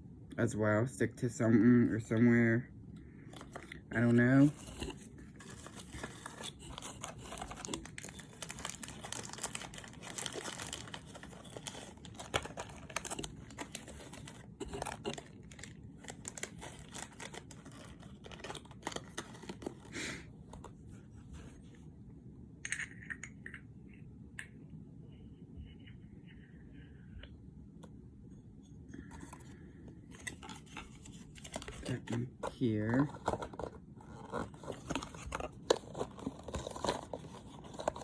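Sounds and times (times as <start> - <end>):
plastic packaging crinkling: 3.3 - 20.0, 30.1 - 38.0.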